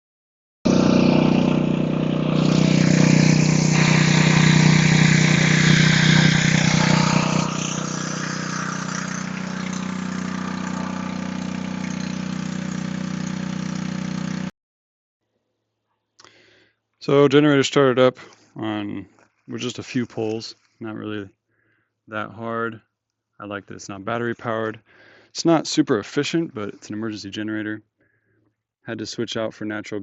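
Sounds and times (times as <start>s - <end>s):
generator engine running: 0.7s - 14.5s.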